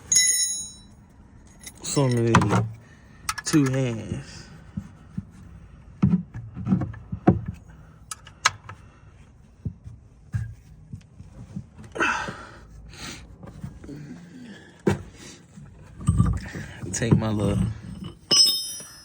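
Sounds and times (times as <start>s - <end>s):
metal hand tools clinking: 0.0s - 2.4s, 16.1s - 19.0s.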